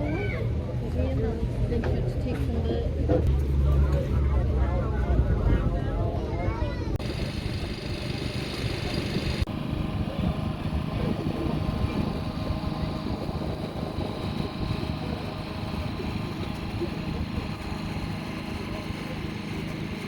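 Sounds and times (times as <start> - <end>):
engine droning: 6.9 - 20.0.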